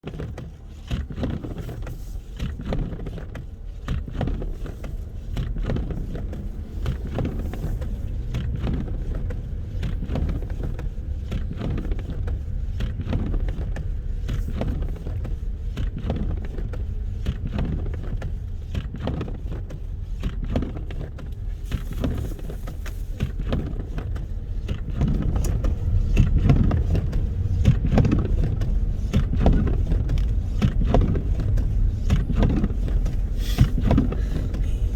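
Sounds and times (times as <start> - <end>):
wind buffeting microphone: 22.1 - 34.9.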